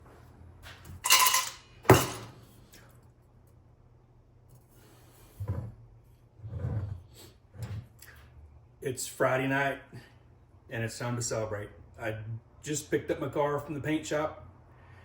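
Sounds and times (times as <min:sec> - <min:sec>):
ringing clink: 0:01.0 - 0:02.2.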